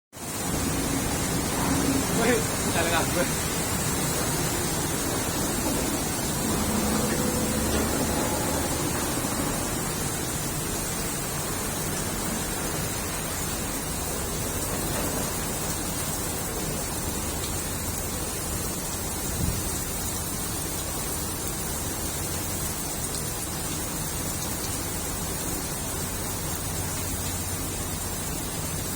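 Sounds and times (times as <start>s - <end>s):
steady rain hiss: 0.2s - 28.9s.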